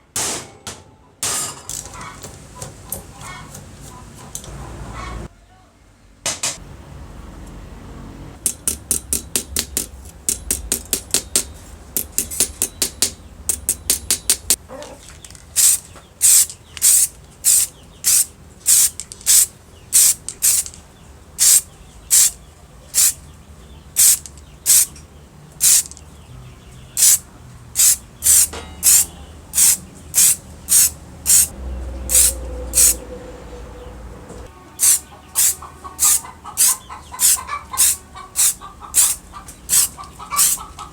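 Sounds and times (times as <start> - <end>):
spray paint can hissing: 15.6 - 20.8, 21.4 - 22.4, 23.0 - 23.2, 24.0 - 24.9, 25.6 - 26.0, 27.0 - 27.2, 27.8 - 31.5, 32.1 - 33.0, 34.8 - 40.6.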